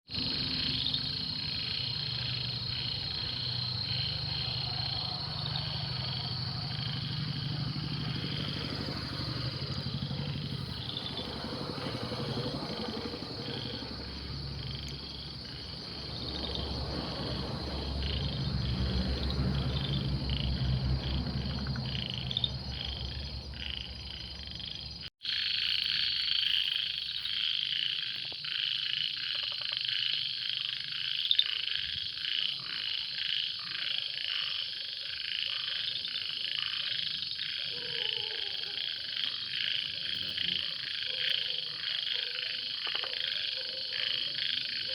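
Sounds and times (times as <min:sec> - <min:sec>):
frogs trilling: 0:00.1 - 0:44.9
short repeated frog calls: 0:18.0 - 0:44.9.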